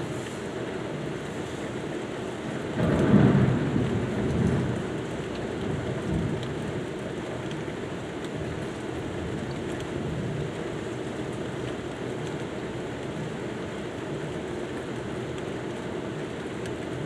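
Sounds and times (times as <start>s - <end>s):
steady rain: 0.0s - 17.0s
low thunder rumble: 2.8s - 6.7s.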